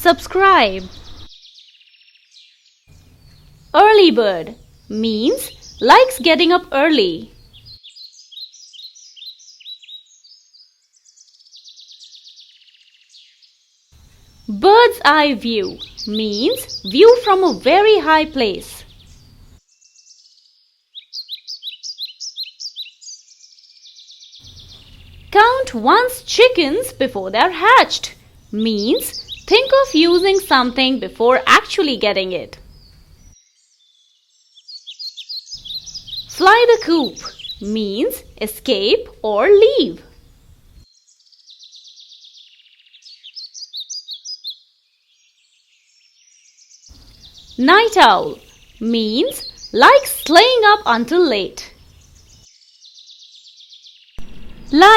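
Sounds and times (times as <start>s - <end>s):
songbird chirping: 0.0s - 54.9s
sharp falling bird notes: 54.2s - 54.9s.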